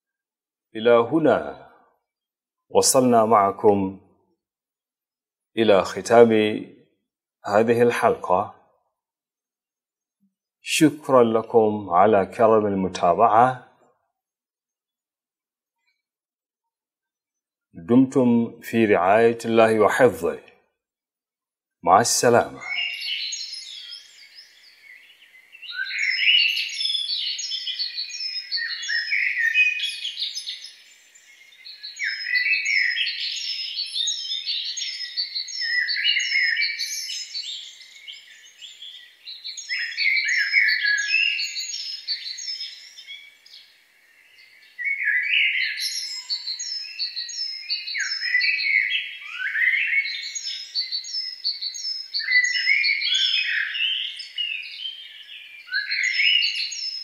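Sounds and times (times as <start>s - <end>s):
birds chirping and singing: 21.9s - 57.0s.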